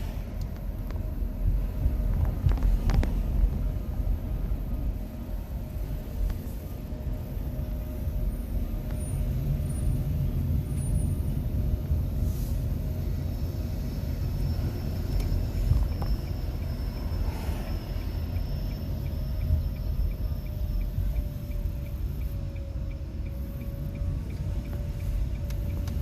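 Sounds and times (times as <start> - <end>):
road and tyre rumble in car: 0.0 - 26.0.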